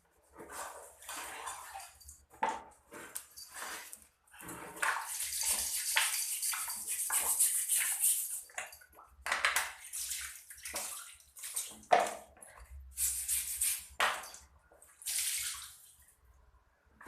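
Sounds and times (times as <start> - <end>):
water splashing in a basin: 4.5 - 16.4.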